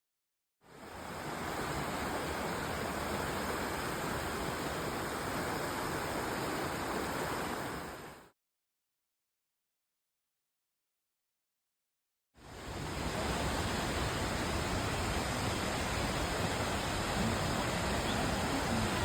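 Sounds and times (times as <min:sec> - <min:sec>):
waterfall roar: 0:12.5 - 0:19.0.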